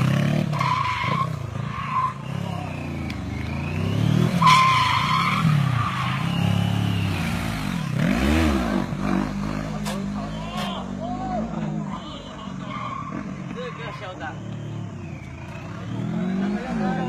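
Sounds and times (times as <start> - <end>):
car engine revving: 0.0 - 10.8, 11.4 - 17.0
tyres squealing: 4.3 - 7.2.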